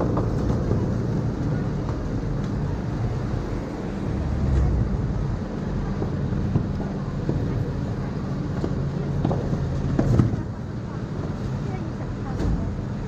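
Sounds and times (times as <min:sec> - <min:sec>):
road noise: 0:00.0 - 0:13.0
street traffic: 0:00.0 - 0:13.0.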